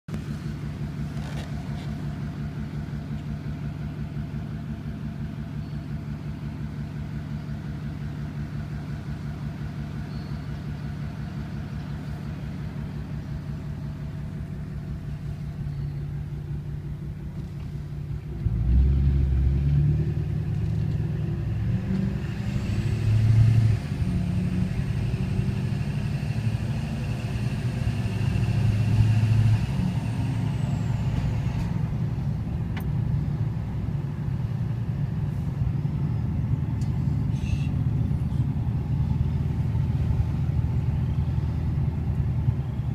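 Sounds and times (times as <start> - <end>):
vehicle engine running: 0.1 - 42.9.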